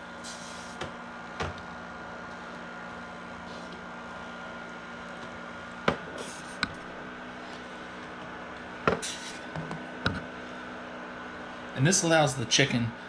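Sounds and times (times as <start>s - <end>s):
incubator humming: 0.0s - 13.0s.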